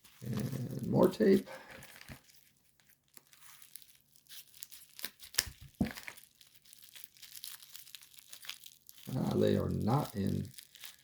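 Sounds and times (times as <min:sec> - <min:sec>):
wrapping crinkling: 0:00.0 - 0:11.0
packing tape ripping: 0:01.9 - 0:11.0.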